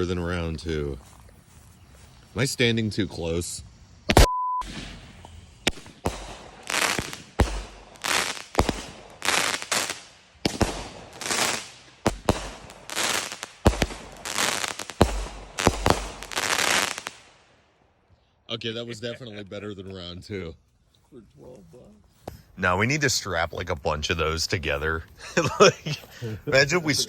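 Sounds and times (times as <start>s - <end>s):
fireworks popping and crackling: 4.1s - 17.5s.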